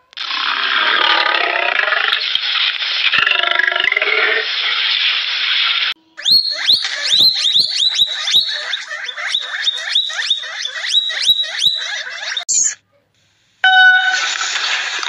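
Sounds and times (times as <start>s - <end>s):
animal high squeaks: 6.2s - 12.8s.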